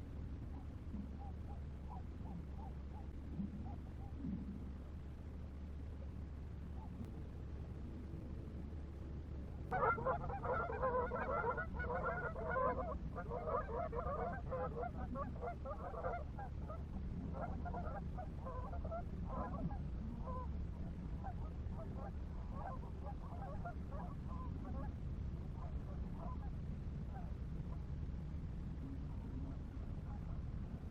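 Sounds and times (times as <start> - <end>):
geese honking: 9.7 - 16.3.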